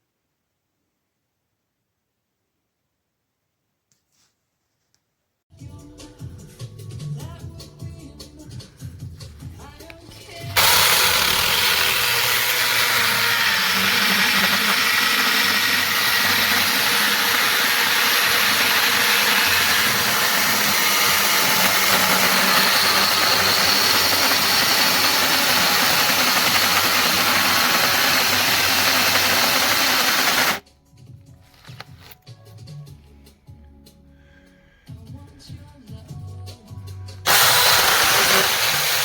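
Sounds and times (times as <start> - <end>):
electric chainsaw whirring: 10.4 - 30.6, 37.3 - 39.0.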